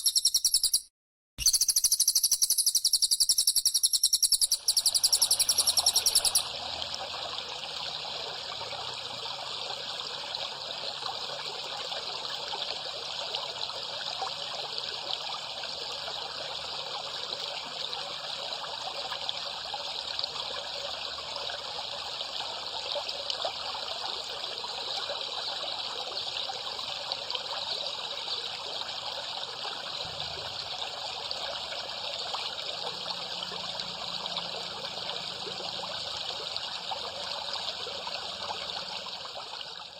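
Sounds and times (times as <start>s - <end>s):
bird song: 0.0s - 6.5s
water trickling and babbling: 3.8s - 39.9s.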